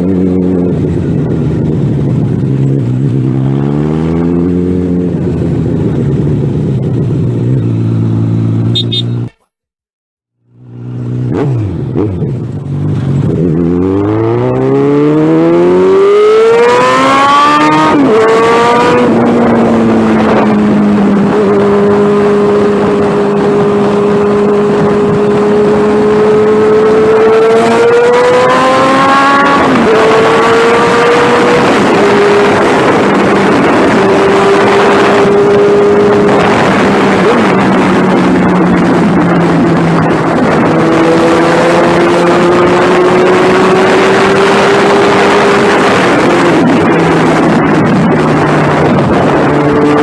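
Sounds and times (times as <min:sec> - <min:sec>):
motorcycle engine revving: 0:00.0 - 0:09.3, 0:10.4 - 0:50.0.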